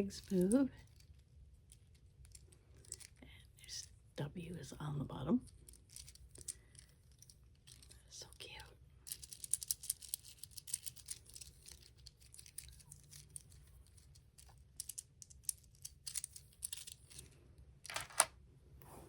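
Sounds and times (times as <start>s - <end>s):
plastic toy parts clicking: 5.4s - 7.9s, 9.1s - 17.2s, 17.8s - 18.3s.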